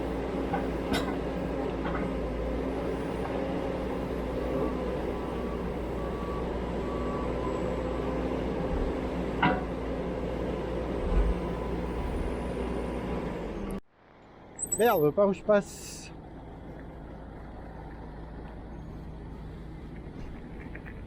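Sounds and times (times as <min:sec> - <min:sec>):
vehicle engine humming: 0:00.0 - 0:21.0
faint short beeps: 0:14.6 - 0:15.0.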